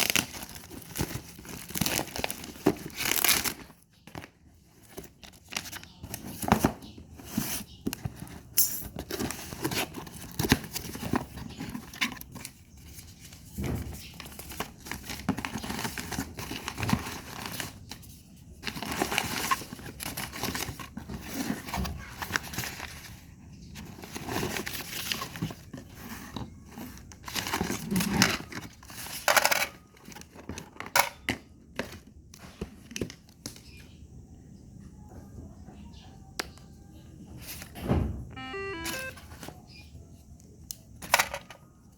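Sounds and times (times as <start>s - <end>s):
packaging crinkling and tearing: 0.0s - 6.7s.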